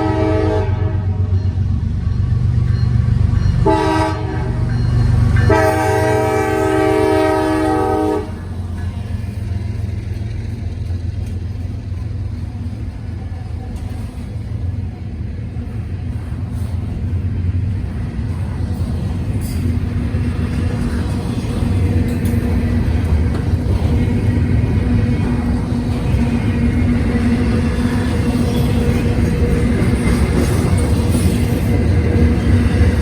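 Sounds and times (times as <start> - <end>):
train horn blasts: 0.0 - 1.4, 3.6 - 8.6
train rumbling past: 0.0 - 33.0.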